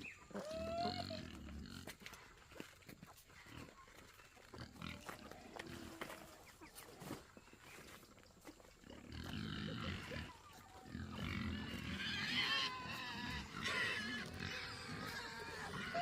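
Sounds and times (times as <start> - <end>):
low animal calls: 0.0 - 1.7, 9.6 - 16.0
high wavering animal cries: 12.0 - 16.0.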